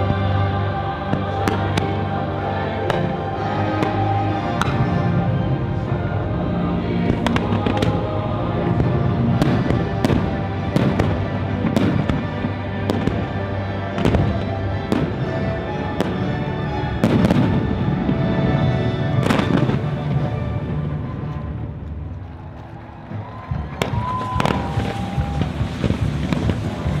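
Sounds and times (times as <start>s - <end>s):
music playing: 0.0s - 27.0s
fireworks bursting: 1.0s - 2.2s, 8.7s - 15.4s, 19.1s - 20.4s, 23.7s - 27.0s.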